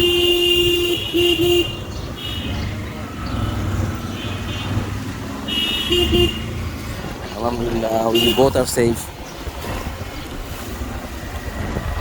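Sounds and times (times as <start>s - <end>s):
vehicle horns honking: 0.0s - 6.8s, 7.6s - 8.8s
traffic rumble: 0.0s - 12.0s.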